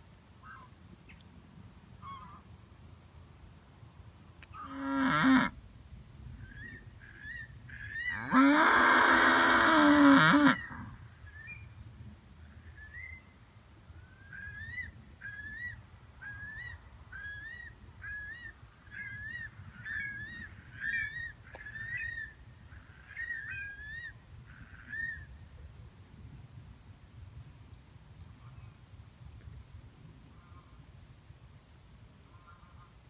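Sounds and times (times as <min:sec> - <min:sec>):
cow mooing: 0:04.6 - 0:05.6, 0:08.2 - 0:10.8.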